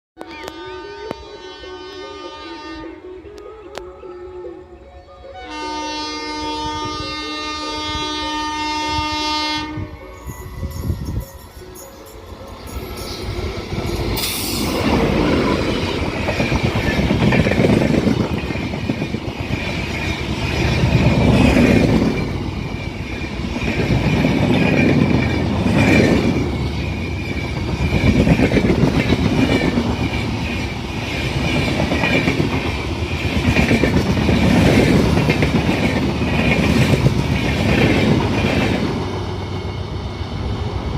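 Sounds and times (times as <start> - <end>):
train wheels rumbling on track: 9.6 - 40.9
high wheel squeal: 10.0 - 17.2.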